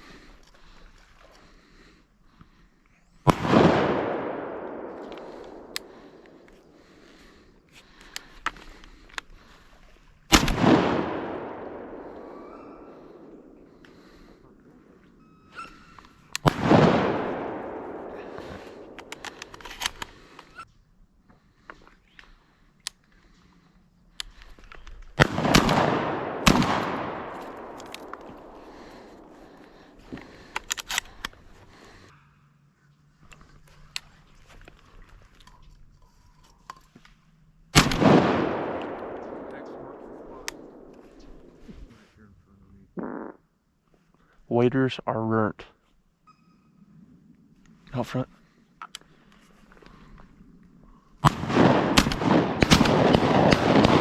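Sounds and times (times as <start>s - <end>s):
shotgun shots with echo: 3.3s - 6.4s, 10.3s - 13.3s, 16.4s - 19.0s, 25.2s - 29.3s, 37.8s - 41.6s, 51.2s - 54.0s.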